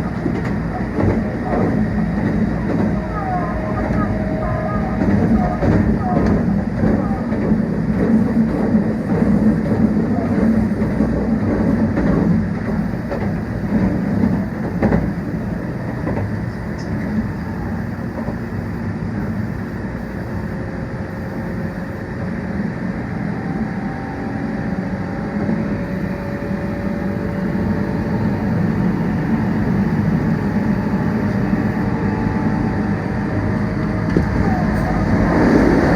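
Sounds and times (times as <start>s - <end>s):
track clacks: 0.0s - 17.4s, 33.8s - 35.9s
train wheels rumbling on rails: 0.0s - 35.9s.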